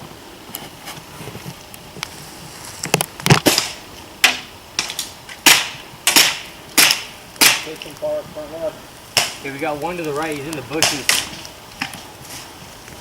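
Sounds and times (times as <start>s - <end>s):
airsoft gun shots: 5.4s - 7.8s.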